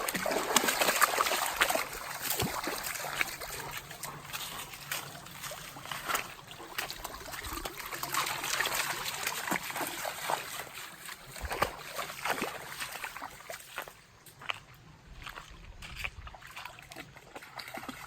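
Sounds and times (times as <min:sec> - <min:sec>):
dog splashing through water: 0:00.0 - 0:14.0, 0:15.2 - 0:18.0
running water trickling: 0:00.0 - 0:14.0.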